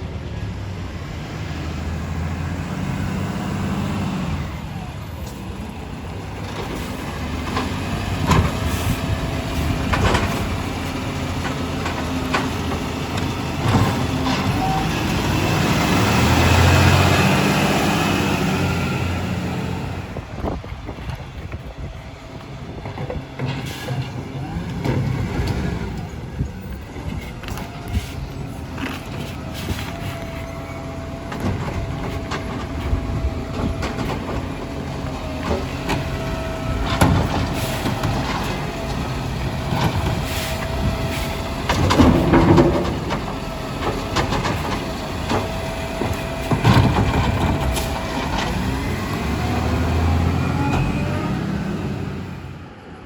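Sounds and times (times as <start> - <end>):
garbage truck engine rumbling: 0.0 - 53.0
loud clunks and clatters: 6.4 - 14.8, 31.2 - 49.3.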